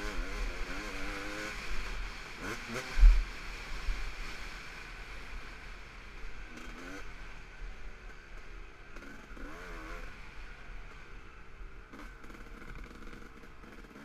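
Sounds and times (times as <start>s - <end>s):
dirt bike engine revving: 0.0s - 4.6s, 6.4s - 7.4s, 8.9s - 10.4s, 11.8s - 14.0s
wind rumble on microphone: 2.8s - 4.1s.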